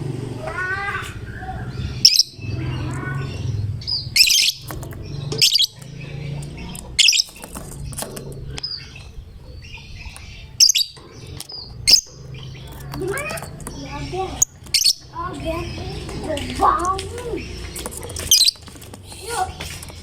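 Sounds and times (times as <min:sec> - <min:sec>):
soft bird twittering: 0:00.9 - 0:20.0
lovebird shrill chirping: 0:02.0 - 0:05.9, 0:10.0 - 0:16.1, 0:17.2 - 0:18.6.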